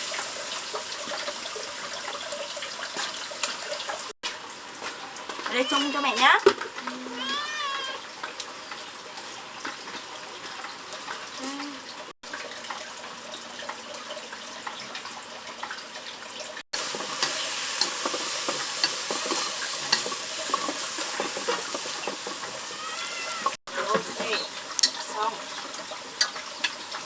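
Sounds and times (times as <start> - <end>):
food sizzling in a pan: 0.0 - 12.1, 16.4 - 27.0
stirring clicks and scrapes: 16.8 - 27.0.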